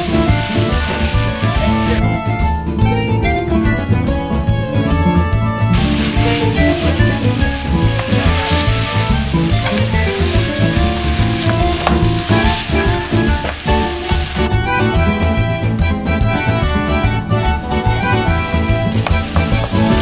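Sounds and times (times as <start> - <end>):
food sizzling in frying pan: 0.0 - 2.0, 5.7 - 14.5, 17.8 - 20.0
wooden spatula stirring: 0.0 - 2.0, 5.8 - 14.5, 18.1 - 20.0
background music: 0.0 - 20.0.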